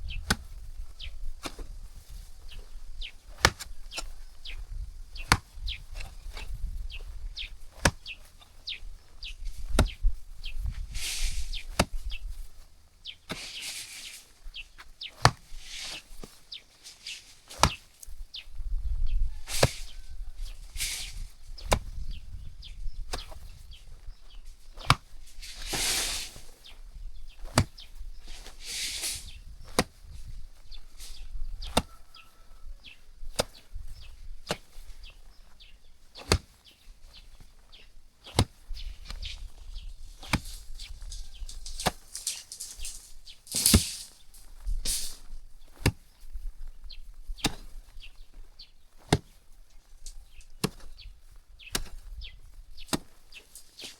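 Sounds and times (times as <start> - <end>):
short scraping hisses: 10.8 - 11.7, 13.3 - 14.4, 15.6 - 17.9, 20.7 - 21.3, 25.4 - 26.6, 28.3 - 29.4, 40.2 - 45.2.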